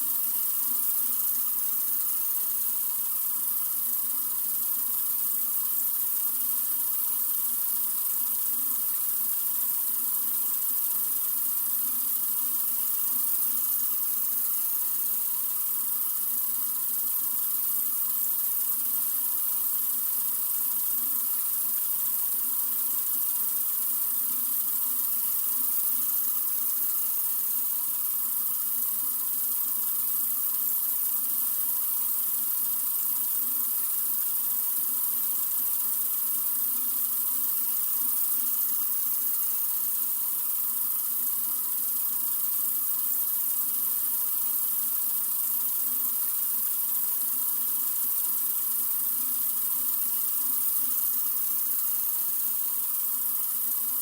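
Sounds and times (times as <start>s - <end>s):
faucet running water: 0.0s - 54.0s.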